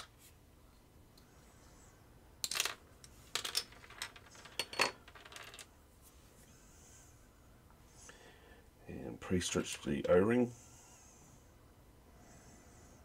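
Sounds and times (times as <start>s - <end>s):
plastic parts clicking and clinking: 2.4s - 5.7s.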